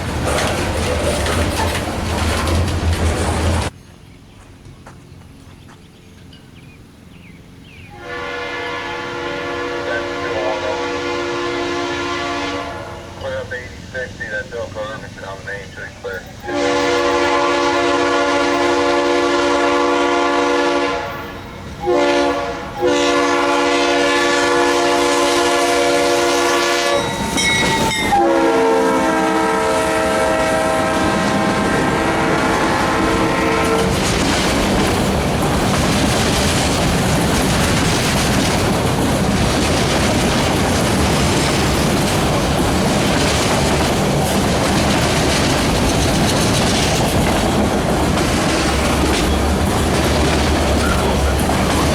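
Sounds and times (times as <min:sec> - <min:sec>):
train wheels clattering over rail joints: 0:00.0 - 0:03.8, 0:32.7 - 0:51.9
train air horn blasts: 0:07.9 - 0:13.6, 0:16.2 - 0:34.0.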